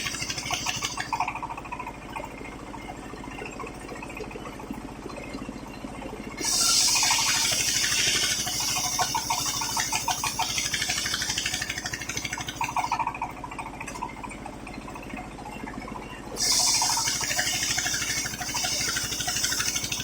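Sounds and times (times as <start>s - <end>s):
circular saw cutting wood: 0.0s - 1.3s, 6.4s - 13.0s, 16.4s - 20.0s
motor humming: 0.0s - 2.9s, 6.2s - 15.2s, 16.3s - 20.0s.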